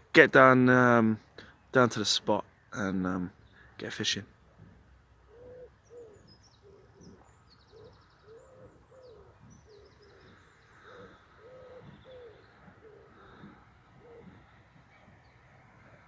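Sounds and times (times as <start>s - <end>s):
songbird chirps and trills: 0.0s - 16.0s
low cooing bird notes: 4.4s - 16.0s.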